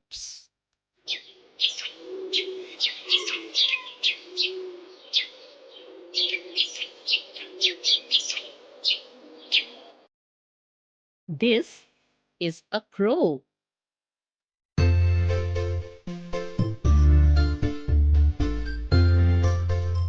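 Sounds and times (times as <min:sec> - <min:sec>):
sparrow chirping: 0:01.0 - 0:10.0.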